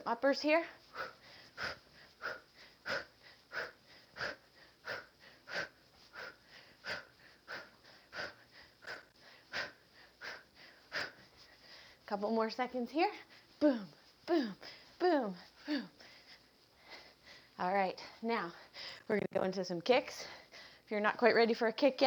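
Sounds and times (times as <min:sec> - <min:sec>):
sharp breaths with punches: 0:00.6 - 0:12.1.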